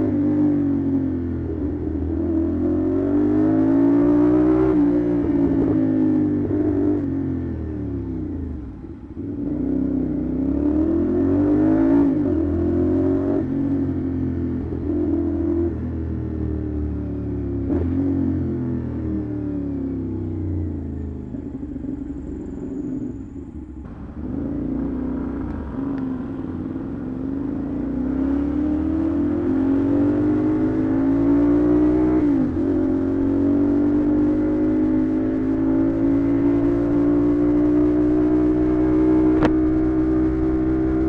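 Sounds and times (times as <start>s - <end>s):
motorcycle engine: 20.2s - 41.0s.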